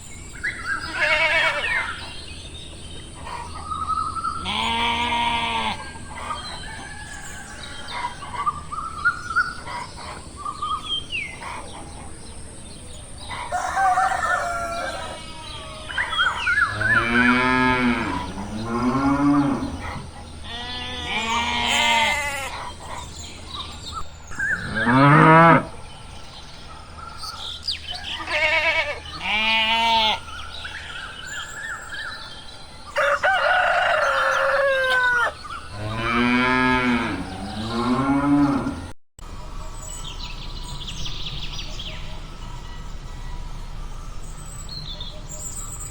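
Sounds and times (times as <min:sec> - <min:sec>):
cows mooing: 0:04.4 - 0:06.0, 0:14.1 - 0:22.8, 0:24.5 - 0:25.8, 0:28.1 - 0:30.3, 0:34.0 - 0:38.9
bird chirps: 0:22.5 - 0:25.1, 0:39.3 - 0:45.9.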